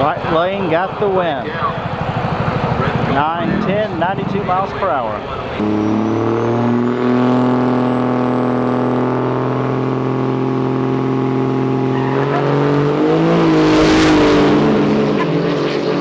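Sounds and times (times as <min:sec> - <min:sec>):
racing engine droning: 0:00.0 - 0:16.0
thin high whine: 0:08.6 - 0:16.0.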